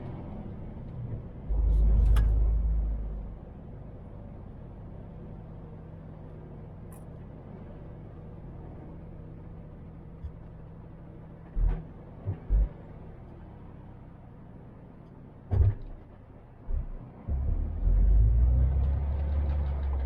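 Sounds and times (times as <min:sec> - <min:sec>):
truck diesel engine humming: 0:00.0 - 0:15.5, 0:16.1 - 0:20.0
low thumps: 0:16.7 - 0:17.7.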